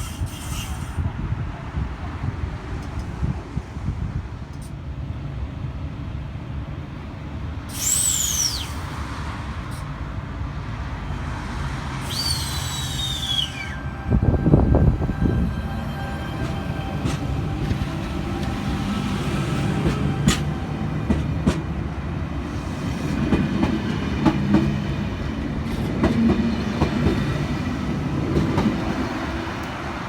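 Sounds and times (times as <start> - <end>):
electric train rumbling: 0.0 - 30.0
high falling whistles: 7.7 - 9.0, 12.0 - 14.6.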